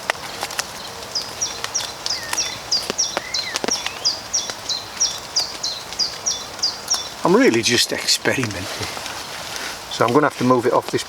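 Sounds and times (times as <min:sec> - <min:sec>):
sharp clicks: 0:00.0 - 0:08.6
rain hiss: 0:00.0 - 0:11.0
small bird chirping: 0:00.0 - 0:11.0.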